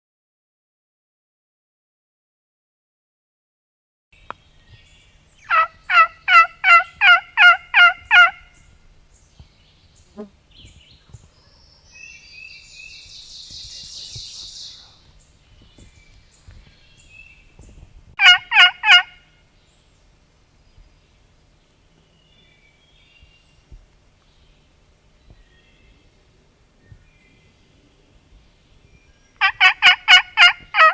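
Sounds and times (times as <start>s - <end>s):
turkey yelping: 5.5s - 8.5s, 18.2s - 19.2s, 29.4s - 30.9s
bird raspy twittering: 8.0s - 17.8s.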